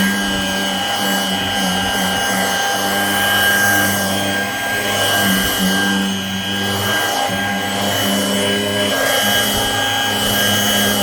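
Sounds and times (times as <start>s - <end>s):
hand vacuum whining: 0.0s - 11.0s
nozzle rubbing upholstery: 7.8s - 11.0s.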